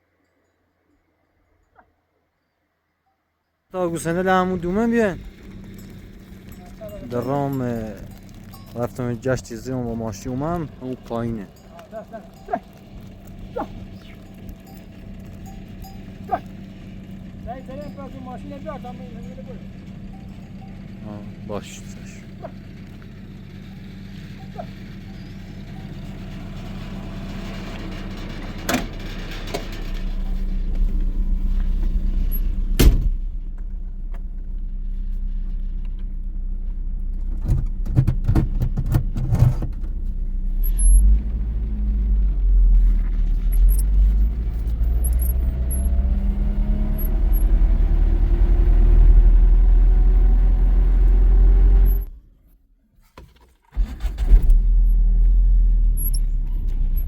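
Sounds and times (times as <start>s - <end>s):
car engine running: 3.8s - 52.3s, 53.8s - 57.0s
car body knocks and rattles: 37.3s - 39.9s.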